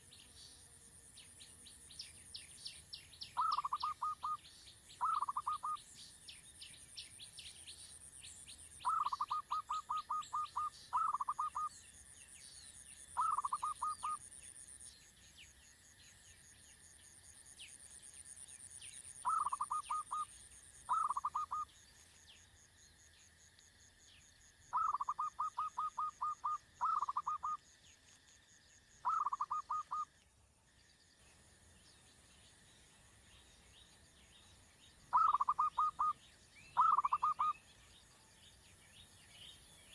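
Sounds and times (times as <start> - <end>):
bird calls with rapid pulsed notes: 3.3 - 4.4, 5.0 - 5.8, 8.8 - 11.8, 13.1 - 14.2, 19.2 - 20.3, 20.9 - 21.7, 24.7 - 27.6, 29.0 - 30.1, 35.1 - 37.8
faint high chirps: 18.6 - 21.8, 29.0 - 30.1, 32.0 - 39.6.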